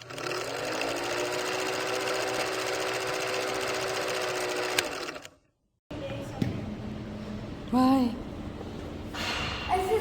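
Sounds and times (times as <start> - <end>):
small motor whirring: 0.0 - 5.4.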